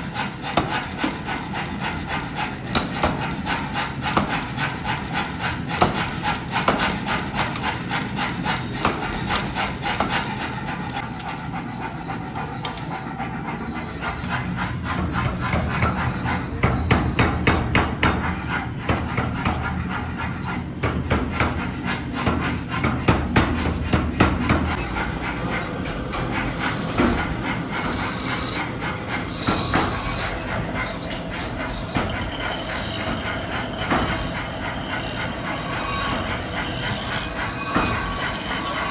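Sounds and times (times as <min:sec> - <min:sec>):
rasping metal strikes: 0:00.0 - 0:11.7, 0:12.5 - 0:38.9
high-pitched metal squeal: 0:11.0 - 0:14.6, 0:24.7 - 0:38.9.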